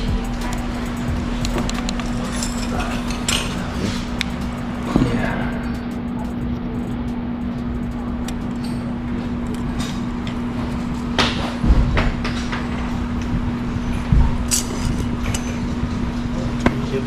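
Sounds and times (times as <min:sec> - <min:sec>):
steady hum: 0:00.0 - 0:17.0
metal tools clanking: 0:00.3 - 0:05.9, 0:13.8 - 0:15.8
heavy dull thumps: 0:11.0 - 0:14.5.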